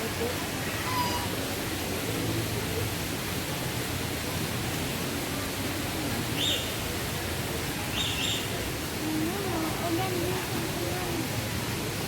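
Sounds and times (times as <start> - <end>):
rushing outdoor background noise: 0.0 - 12.0.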